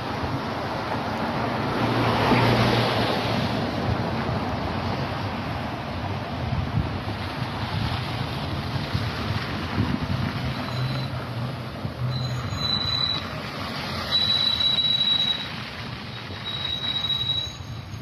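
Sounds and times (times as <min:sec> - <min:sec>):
high-pitched squeal: 0:12.0 - 0:18.0.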